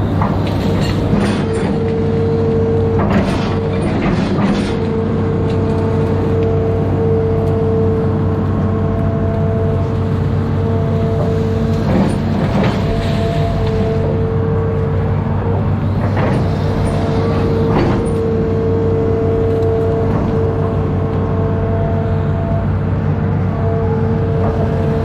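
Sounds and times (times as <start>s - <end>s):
machine scraping and clanking: 0.0s - 7.6s, 10.6s - 25.0s
diesel engine running under load: 0.0s - 25.0s
steady whine: 0.0s - 25.0s.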